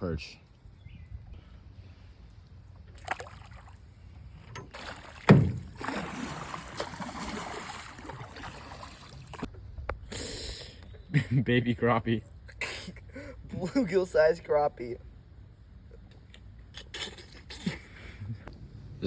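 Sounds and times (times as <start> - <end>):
knock on canoe hull: 5.3 - 5.7.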